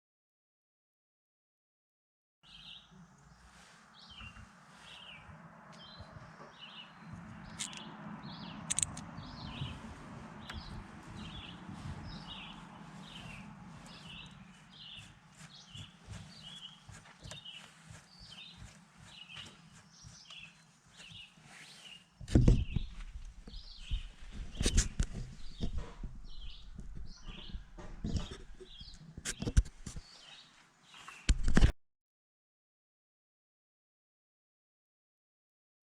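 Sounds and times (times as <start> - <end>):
songbird chirping: 2.4 - 31.3
low rumble: 5.2 - 14.7
sharp clicks: 8.6 - 9.1
low knocks and thumps: 9.1 - 17.4, 22.2 - 29.9.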